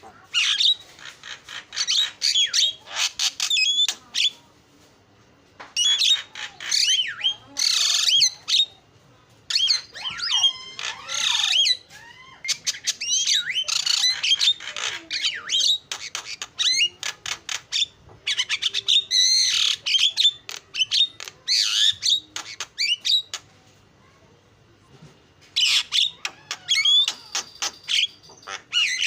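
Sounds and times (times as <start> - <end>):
bird singing varied song: 5.8 - 8.8, 9.5 - 23.4, 25.6 - 29.0.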